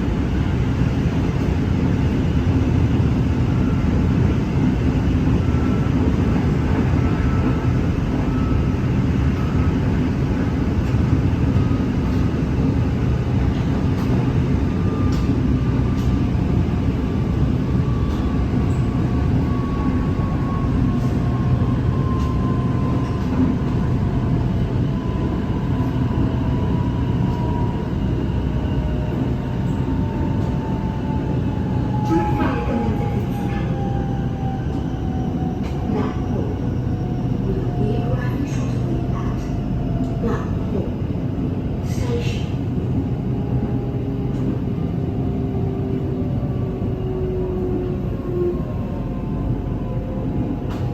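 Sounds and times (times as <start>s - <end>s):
train wheels rumbling on track: 0.0s - 50.9s.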